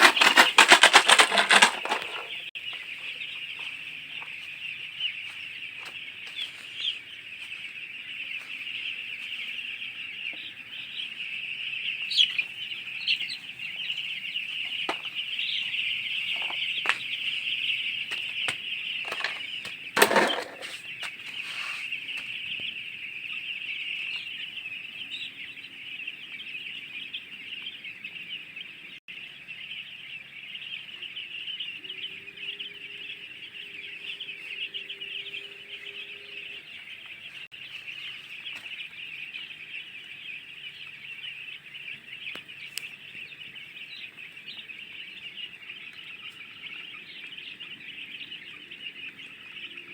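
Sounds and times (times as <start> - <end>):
wings flapping: 0.0 - 2.9, 14.0 - 22.7
chickens scratching: 0.0 - 25.7, 36.6 - 46.8
chickens clucking: 0.0 - 49.9.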